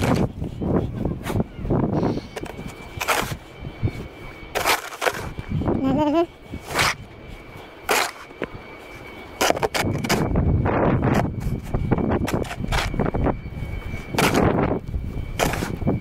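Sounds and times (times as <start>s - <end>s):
snow shovel scraping snow: 2.2s - 3.4s, 4.5s - 5.3s, 6.6s - 7.0s, 7.8s - 8.3s, 9.4s - 10.2s, 11.4s - 13.0s, 14.1s - 14.5s, 15.4s - 15.8s.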